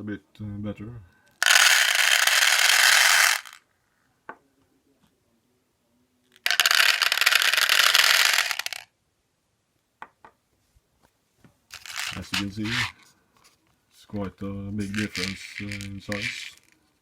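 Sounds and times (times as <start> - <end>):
pellets poured into container: 1.4 - 3.6, 6.4 - 8.8, 11.7 - 13.0, 14.8 - 16.8.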